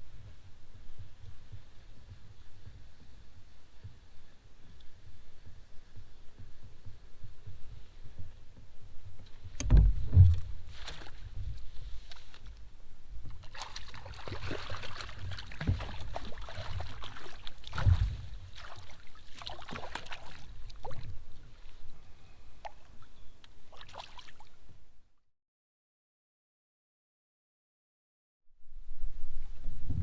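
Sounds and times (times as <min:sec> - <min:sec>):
wind rumble on microphone: 0:00.0 - 0:18.6, 0:28.6 - 0:30.0
water splashing around kayak: 0:09.3 - 0:12.6, 0:13.2 - 0:22.0, 0:22.6 - 0:24.6
paddle strokes splashing: 0:10.0 - 0:12.5, 0:13.3 - 0:21.9, 0:22.6 - 0:24.6.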